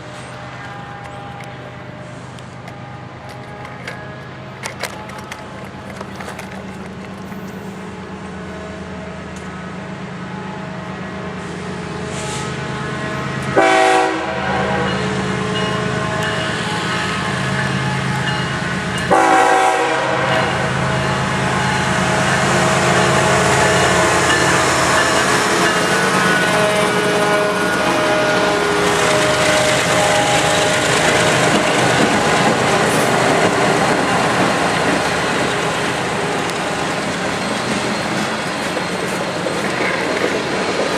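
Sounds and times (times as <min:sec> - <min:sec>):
diesel locomotives passing: 0:00.0 - 0:40.9
train rumbling and clattering: 0:00.0 - 0:40.9
train horn blasts: 0:12.0 - 0:18.2, 0:19.0 - 0:32.2.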